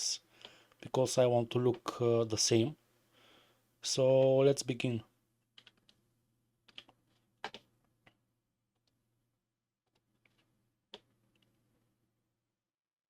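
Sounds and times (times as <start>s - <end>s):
keyboard and mouse clicks: 5.5s - 6.0s, 6.6s - 8.2s.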